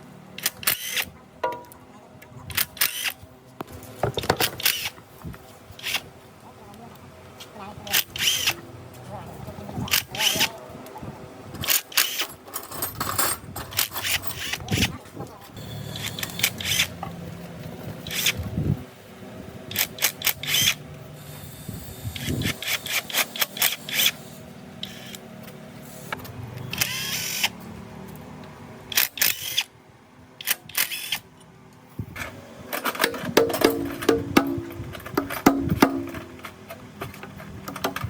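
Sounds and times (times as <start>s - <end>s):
sharp clicks and knocks: 1.4s - 1.8s, 32.2s - 38.0s
low steady hum: 31.4s - 37.0s.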